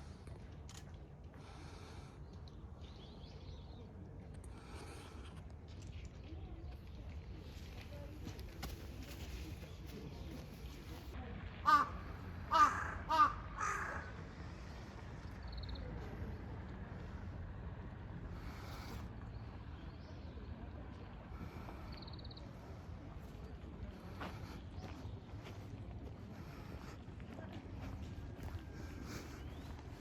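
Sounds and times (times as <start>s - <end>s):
crow cawing: 11.6s - 14.2s.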